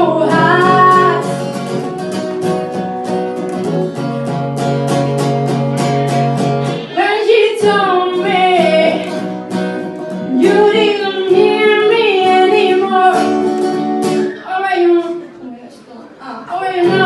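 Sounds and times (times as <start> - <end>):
woman singing: 0.0 - 1.4, 6.8 - 9.3, 10.2 - 15.4, 16.5 - 17.0
acoustic guitar strumming: 0.0 - 15.2, 16.6 - 17.0.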